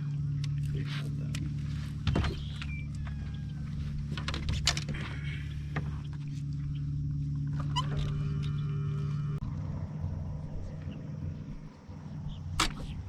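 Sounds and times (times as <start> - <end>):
low motor hum: 0.0 - 13.0.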